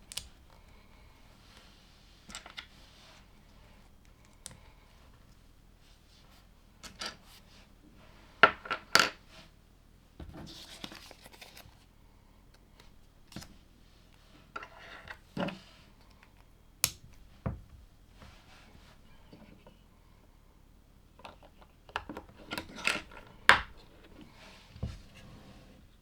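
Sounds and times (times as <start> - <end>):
rustling through plastic parts: 21.1 - 25.4.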